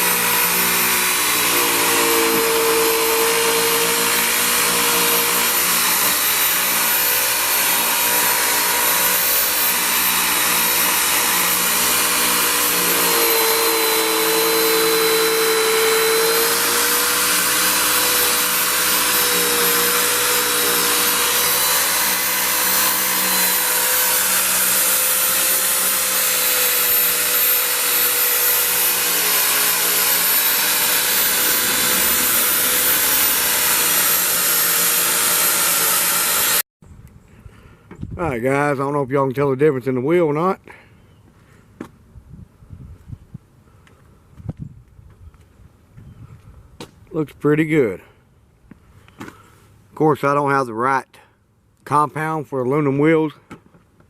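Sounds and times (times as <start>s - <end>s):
electric buffer motor whine: 0.0s - 36.6s.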